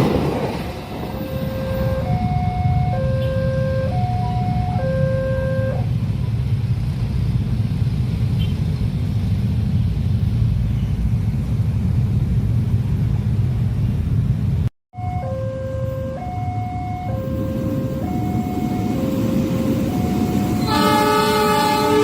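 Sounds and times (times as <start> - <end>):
passing train rumble: 0.0 - 22.0
two-tone crossing alarm: 1.1 - 5.9, 15.0 - 22.0.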